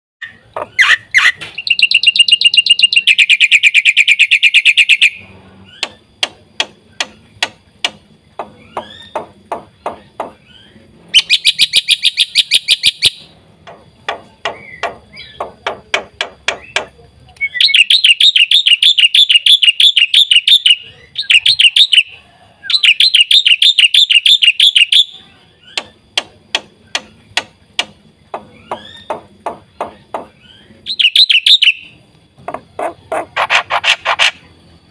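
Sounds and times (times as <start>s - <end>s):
myna singing rattling trills: 0.2s - 34.9s
sharp clicking bird notes: 5.7s - 10.5s, 11.2s - 20.6s, 25.6s - 31.8s.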